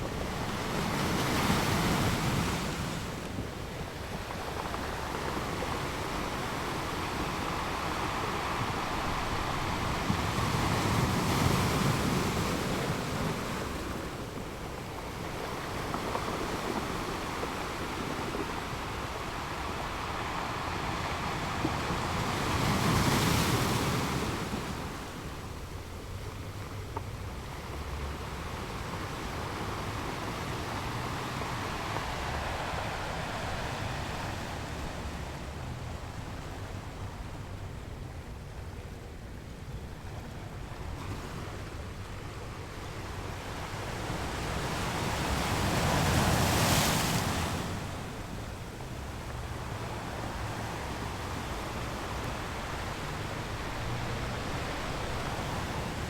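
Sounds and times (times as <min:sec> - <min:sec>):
ocean surf rolling onto shore: 0:00.0 - 0:56.0
waves breaking: 0:00.0 - 0:56.0.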